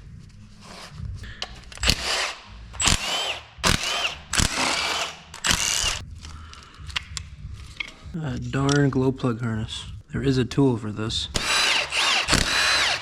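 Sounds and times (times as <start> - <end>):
handheld power tool bursts: 1.8 - 6.0, 11.4 - 13.0.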